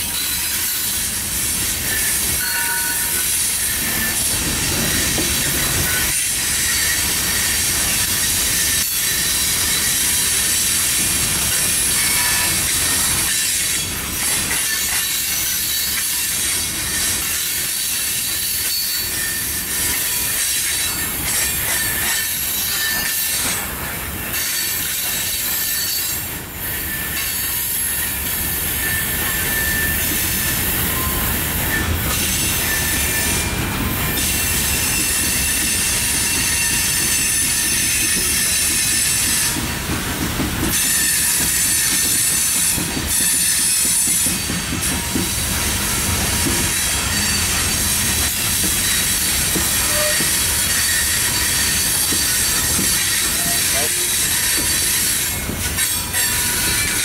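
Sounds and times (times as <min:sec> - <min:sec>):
freight cars rolling on rails: 0:00.0 - 0:57.0
high-pitched wheel squeal: 0:28.8 - 0:33.6, 0:48.8 - 0:57.0.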